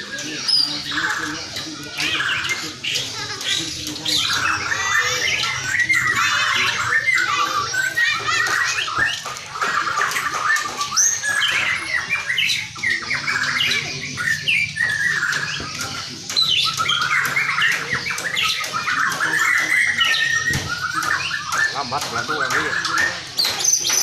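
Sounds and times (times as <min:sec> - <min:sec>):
songbird singing: 0:00.0 - 0:24.0.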